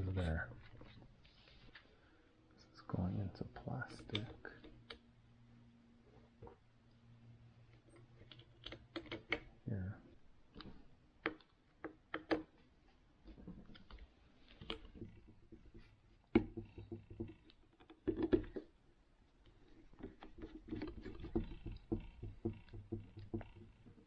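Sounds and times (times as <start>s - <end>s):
small plastic parts clicking: 7.7s - 9.6s, 13.3s - 18.8s, 19.4s - 24.0s.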